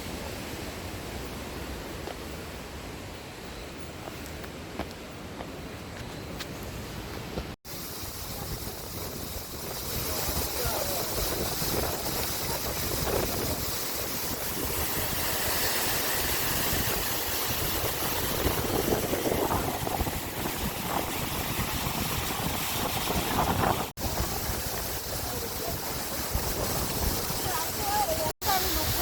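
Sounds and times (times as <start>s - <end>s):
wind buffeting microphone: 7.2s - 29.0s
sea surf: 8.2s - 29.0s.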